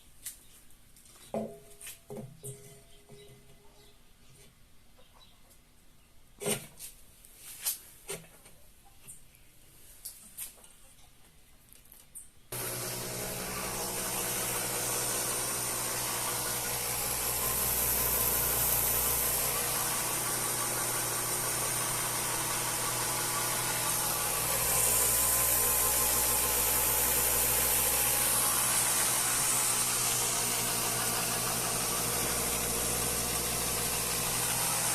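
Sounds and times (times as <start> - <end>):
machine running hum with hiss: 12.6 - 34.9.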